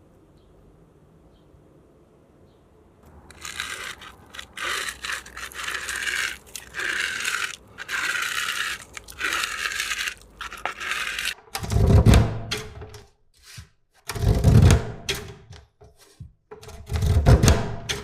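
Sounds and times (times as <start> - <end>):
crunching scraping strokes: 3.1 - 11.4.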